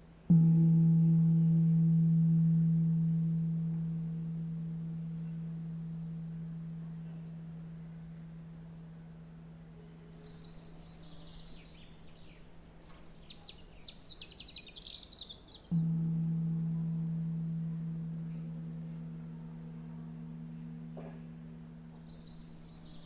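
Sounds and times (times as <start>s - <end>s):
birds chirping: 10.0s - 15.8s, 21.9s - 23.0s
singing bowl ringing: 15.7s - 23.0s.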